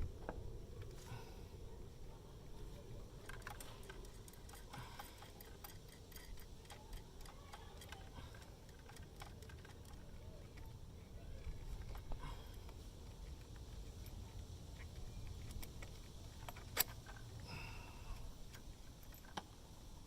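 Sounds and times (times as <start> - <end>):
metal tools clicking and tapping: 3.2 - 10.8, 11.7 - 17.5, 18.4 - 19.6.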